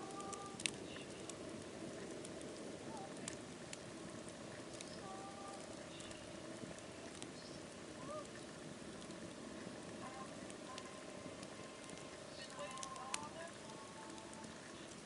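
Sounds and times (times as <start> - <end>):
campfire crackling and popping: 0.0 - 15.0
faint whistles: 4.8 - 6.5.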